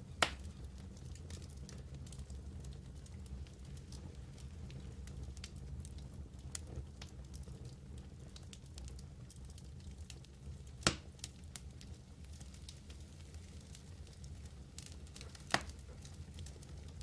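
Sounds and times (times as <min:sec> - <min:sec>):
wood fire crackling: 0:00.0 - 0:17.0
loud pop of fire: 0:00.1 - 0:00.5, 0:10.8 - 0:11.1, 0:15.2 - 0:15.9.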